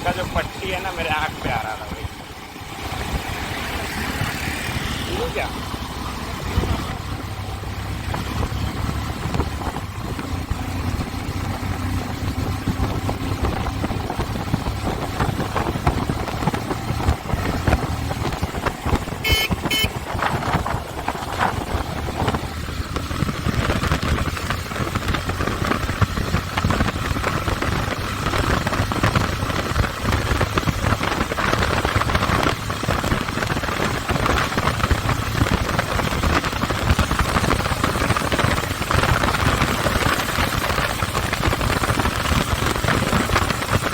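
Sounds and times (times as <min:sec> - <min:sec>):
motorcycle engine running: 0:00.0 - 0:43.9
road and wind noise: 0:00.0 - 0:43.9
short horn beeps: 0:19.2 - 0:20.0.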